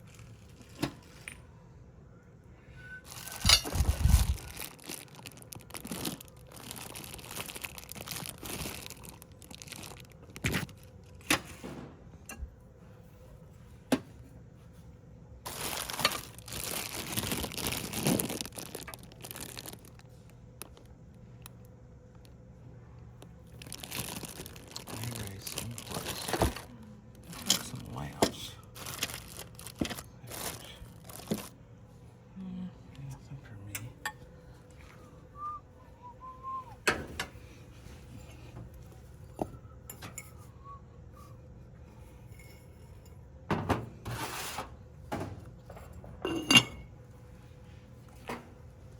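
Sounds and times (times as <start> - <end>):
crinkling and rustling: 0.0 - 1.4, 3.0 - 11.6, 14.0 - 22.4, 23.4 - 31.6.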